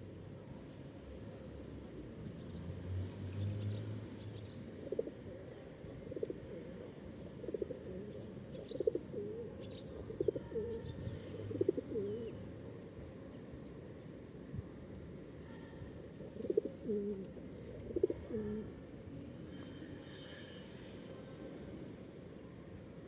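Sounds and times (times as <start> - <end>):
pigeon cooing: 7.4 - 12.4, 16.4 - 18.7.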